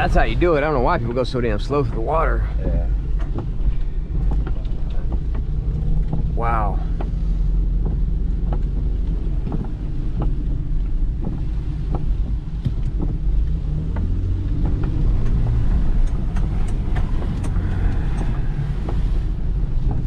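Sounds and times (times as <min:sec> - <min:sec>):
engine and tyres rumbling: 0:00.0 - 0:20.0
sharp ticks and taps: 0:16.0 - 0:19.0.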